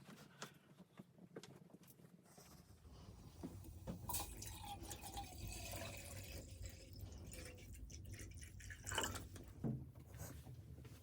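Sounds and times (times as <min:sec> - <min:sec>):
water pouring into container: 0:04.0 - 0:09.4.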